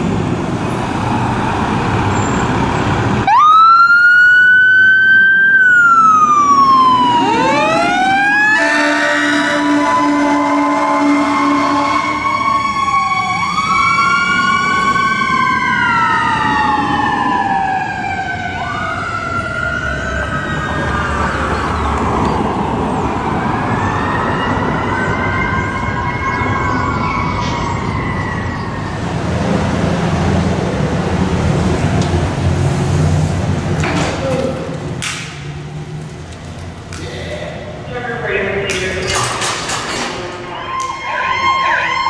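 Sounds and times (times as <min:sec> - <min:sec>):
emergency vehicle sirens wailing: 0:00.0 - 0:37.0, 0:37.7 - 0:42.0
steady horn note: 0:08.5 - 0:12.2.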